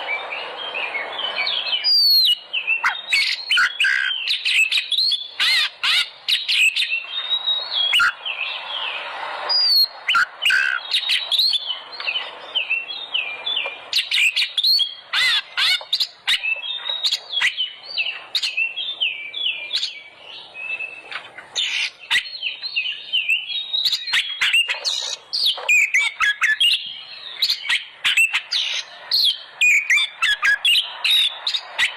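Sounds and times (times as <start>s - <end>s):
bird singing whistled notes: 0.0s - 31.9s.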